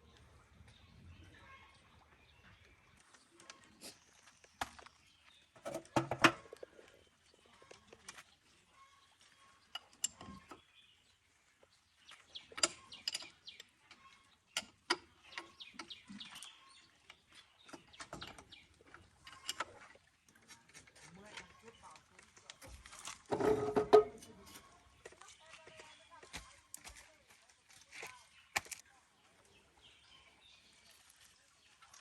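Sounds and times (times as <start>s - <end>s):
tools clinking on metal parts: 12.6s - 14.0s.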